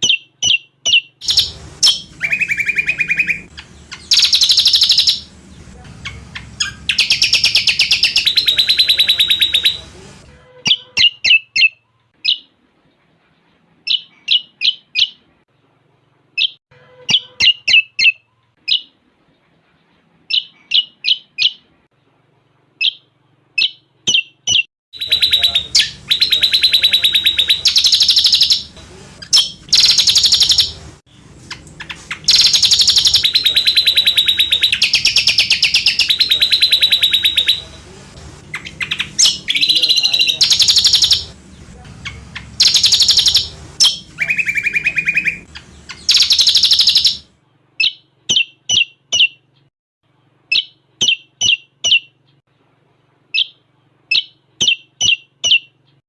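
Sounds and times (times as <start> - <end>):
songbird trilling and chirping: 0.0 - 9.8, 10.7 - 12.5, 13.9 - 15.2, 16.4 - 18.9, 22.8 - 30.8, 31.5 - 37.6, 38.5 - 47.2, 47.8 - 49.7, 50.5 - 52.4, 53.3 - 55.8.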